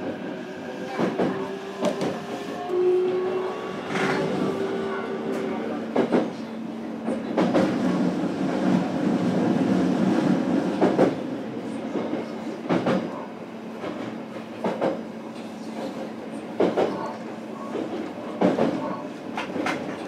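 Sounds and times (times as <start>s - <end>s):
rumble of wheels on rail: 0.0s - 20.0s
clacks over rail joints: 13.8s - 15.0s, 17.7s - 20.0s.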